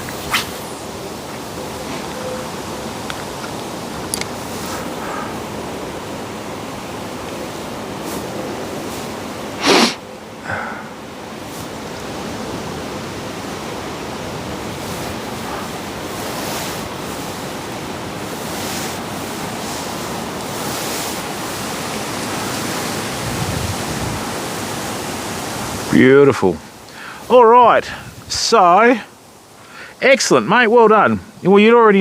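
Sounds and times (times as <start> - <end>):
water rushing: 0.0 - 32.0
wind: 0.0 - 32.0
short sharp noise bursts: 8.9 - 10.1.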